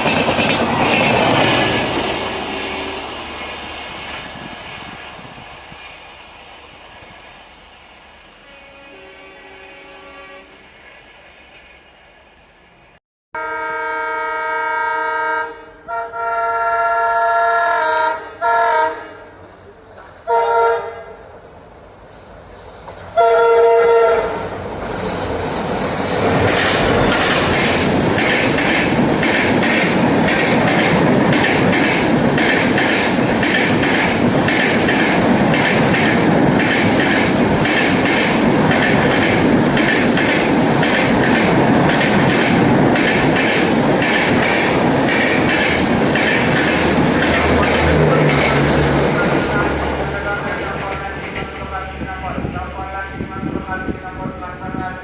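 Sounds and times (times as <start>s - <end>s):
train wheels clattering over rails: 0.0s - 2.7s, 25.6s - 51.6s
passing train rushing: 0.0s - 55.0s
locomotive horn blasts: 1.4s - 3.1s, 8.4s - 10.6s, 13.4s - 19.3s, 20.3s - 21.0s, 23.2s - 24.5s.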